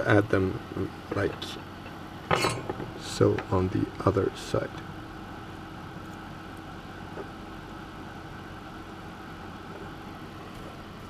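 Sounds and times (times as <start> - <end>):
background hum and hiss: 0.0 - 11.0
faint constant tone: 0.0 - 11.0.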